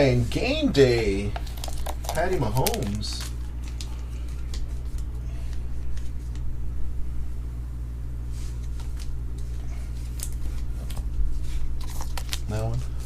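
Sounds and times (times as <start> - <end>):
steady low hum: 0.0 - 13.0
cards being handled: 0.8 - 6.5, 8.4 - 13.0.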